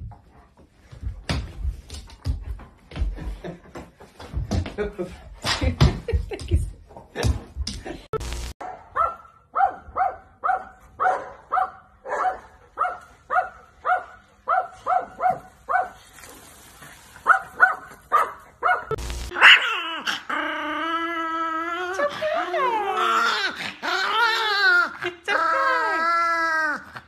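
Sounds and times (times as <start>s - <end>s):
burst of static noise: 8.2s - 8.6s, 18.9s - 19.4s
dog barking: 8.6s - 16.0s, 17.2s - 19.8s.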